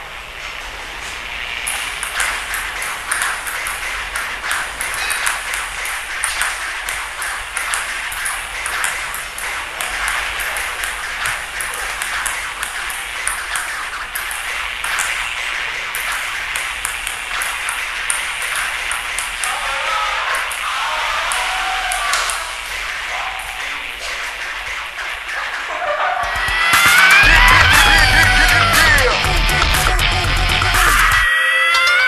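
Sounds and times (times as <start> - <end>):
steady hiss: 0.0 - 31.3
table tennis ball clicking: 1.7 - 25.7.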